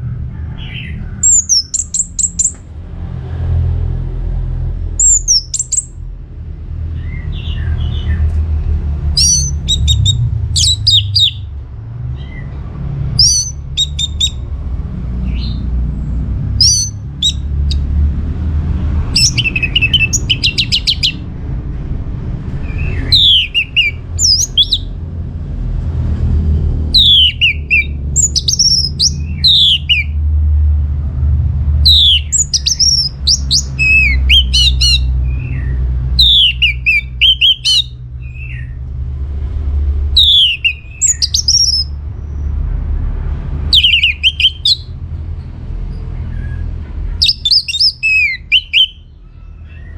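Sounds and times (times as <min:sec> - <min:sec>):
steady low rumble: 0:00.0 - 0:49.9
thrush singing whistled phrases: 0:01.2 - 0:02.6, 0:05.0 - 0:06.0, 0:09.2 - 0:11.5, 0:13.2 - 0:14.4, 0:16.6 - 0:17.8, 0:19.1 - 0:21.2, 0:22.6 - 0:24.9, 0:27.0 - 0:30.2, 0:31.8 - 0:38.7, 0:40.1 - 0:42.0, 0:43.7 - 0:45.0, 0:47.2 - 0:49.2
rapid buzzy bird trill: 0:05.0 - 0:06.0, 0:09.2 - 0:11.5, 0:16.6 - 0:17.8, 0:19.2 - 0:21.2, 0:22.7 - 0:25.0, 0:27.0 - 0:30.2, 0:31.9 - 0:38.6, 0:40.1 - 0:42.0, 0:47.2 - 0:49.1.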